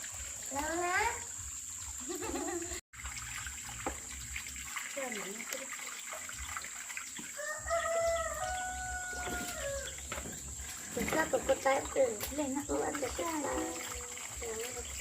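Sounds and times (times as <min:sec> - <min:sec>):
rooster crowing: 0:07.4 - 0:10.0.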